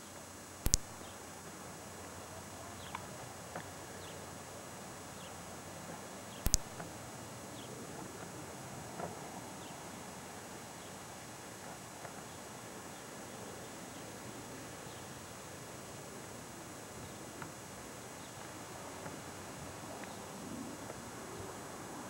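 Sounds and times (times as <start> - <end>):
faint bird chirps: 0.0 - 1.3
steady hiss: 0.0 - 22.0
sharp double clicks: 0.7 - 1.1, 6.4 - 6.9.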